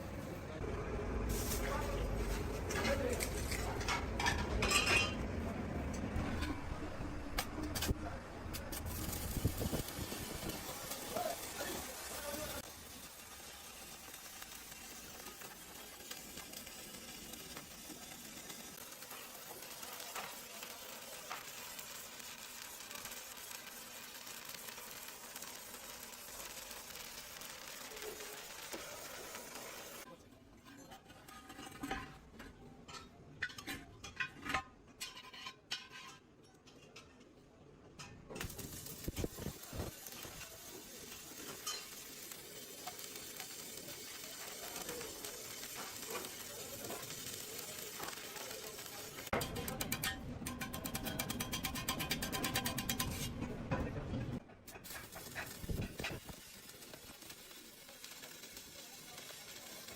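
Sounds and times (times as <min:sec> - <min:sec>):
arc welding crackle: 0:00.0 - 0:04.2, 0:06.4 - 0:30.1, 0:38.4 - 0:53.4, 0:54.4 - 0:59.9.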